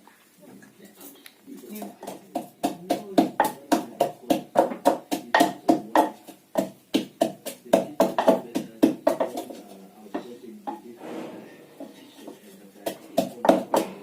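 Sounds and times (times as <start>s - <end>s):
pestle pounding in a mortar: 1.8s - 10.8s, 12.7s - 14.0s.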